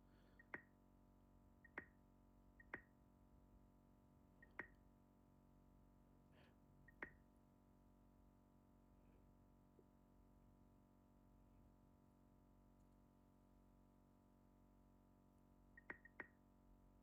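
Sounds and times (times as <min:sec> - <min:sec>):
quiet menu clicks: 0:00.4 - 0:00.7, 0:01.6 - 0:02.0, 0:02.6 - 0:02.9, 0:04.4 - 0:04.8, 0:06.9 - 0:07.2, 0:15.8 - 0:16.4.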